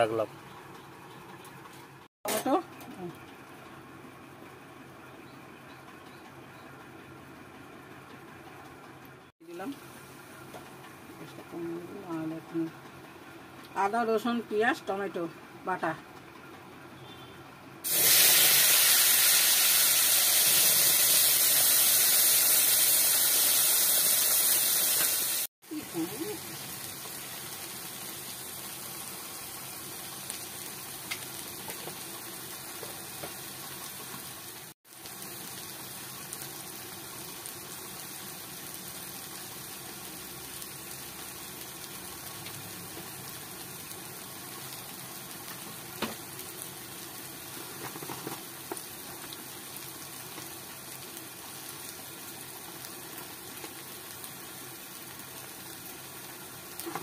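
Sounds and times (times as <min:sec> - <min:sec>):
spice paste sizzling in oil: 0:17.8 - 0:57.0.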